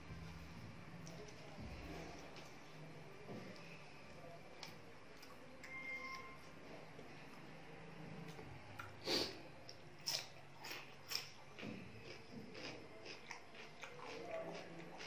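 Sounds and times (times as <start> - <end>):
mouth smacks and clicks: 8.3 - 11.4
person chewing: 8.3 - 15.0.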